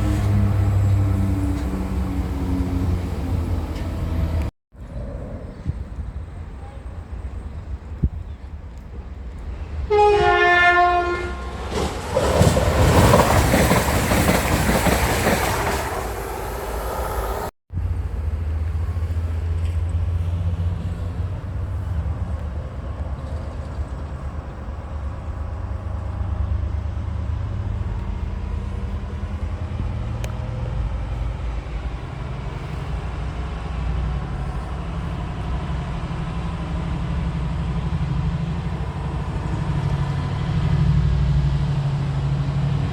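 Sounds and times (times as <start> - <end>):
low train rumble: 0.0 - 42.9
train passing with rushing noise: 0.0 - 42.9
two-note train horn: 9.9 - 11.7.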